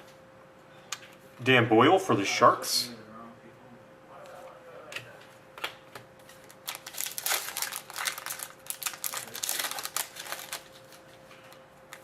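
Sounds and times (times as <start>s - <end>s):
card pack wrapper crinkling: 6.4s - 11.0s.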